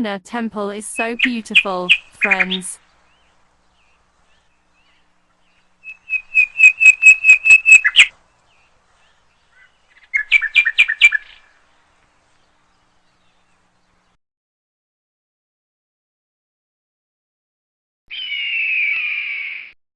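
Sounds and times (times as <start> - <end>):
bird calling high notes: 0.8 - 8.1, 18.1 - 19.8.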